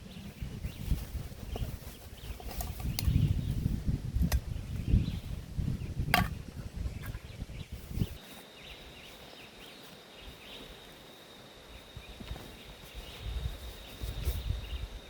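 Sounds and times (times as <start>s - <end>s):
faint bird chirps: 6.8s - 15.0s
high insect drone: 7.3s - 15.0s.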